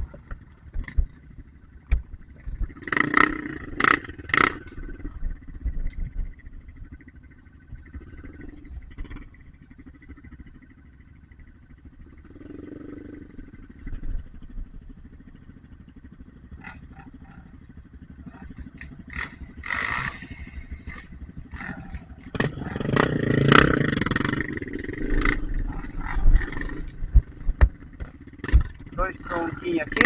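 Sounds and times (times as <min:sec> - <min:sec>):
dirt bike engine revving: 0:00.0 - 0:07.0, 0:07.6 - 0:10.8, 0:11.8 - 0:14.5, 0:15.6 - 0:30.0
sharp knocks and clicks: 0:01.8 - 0:02.8, 0:26.6 - 0:28.9.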